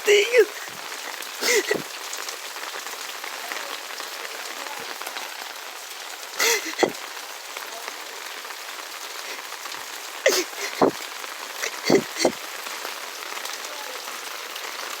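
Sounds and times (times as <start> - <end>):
person's voice bursts: 0.0 - 0.7, 1.4 - 1.8, 6.4 - 7.0, 10.3 - 11.0, 11.6 - 12.4
heavy rain on hard surfaces: 0.0 - 15.0.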